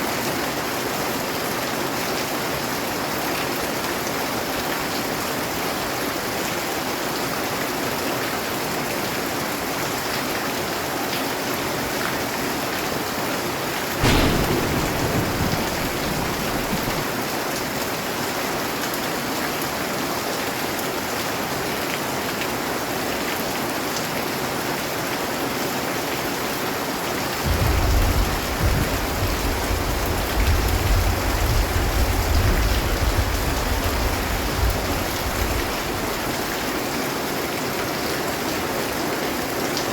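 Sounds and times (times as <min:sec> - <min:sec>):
heavy rain: 0:00.0 - 0:39.9
deep roll of thunder: 0:14.0 - 0:17.3, 0:27.4 - 0:36.7
thunder crack: 0:14.0 - 0:17.3, 0:27.4 - 0:36.7.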